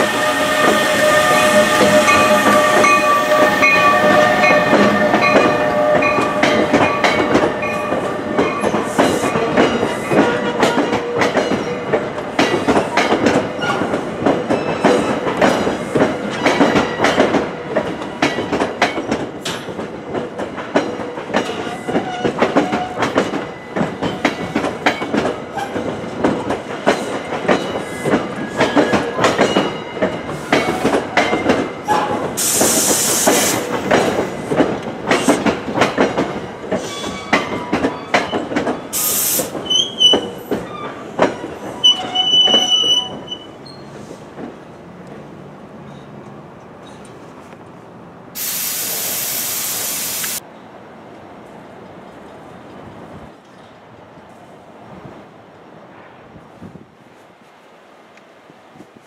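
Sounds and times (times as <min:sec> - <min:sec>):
train wheels clattering over rail joints: 0:01.8 - 0:44.7
air hissing: 0:32.4 - 0:33.7, 0:39.0 - 0:39.6, 0:48.4 - 0:50.4
high wheel squeal: 0:39.0 - 0:41.0, 0:41.8 - 0:44.0.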